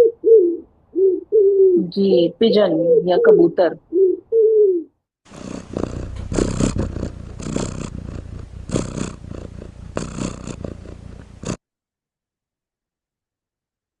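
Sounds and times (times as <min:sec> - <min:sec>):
cat purring: 0:05.3 - 0:11.6.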